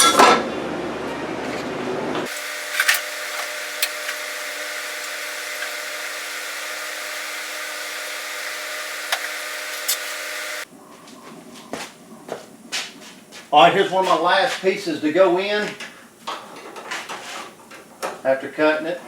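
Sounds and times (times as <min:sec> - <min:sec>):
power tool running: 0:02.2 - 0:10.7.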